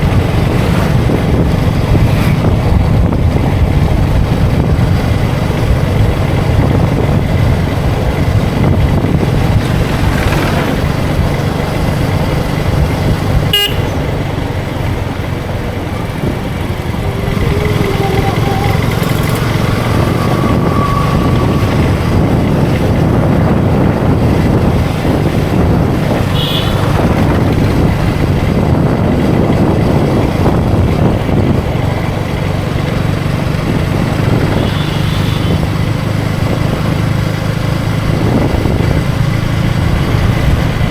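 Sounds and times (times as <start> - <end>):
motorcycle engine running: 0.0 - 40.9
wind and road noise: 0.0 - 40.9
short horn toots: 13.5 - 14.2, 26.3 - 27.1.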